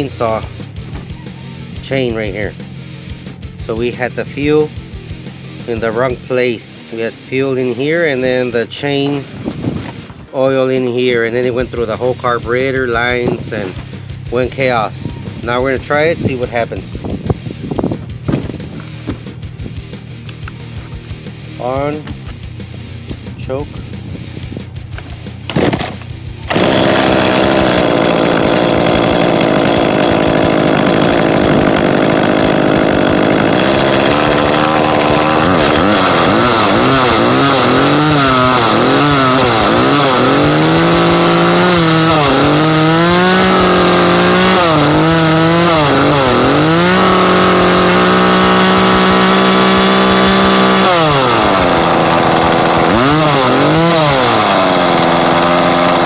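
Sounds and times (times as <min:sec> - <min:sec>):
chainsaw engine revving: 0:25.5 - 0:56.0.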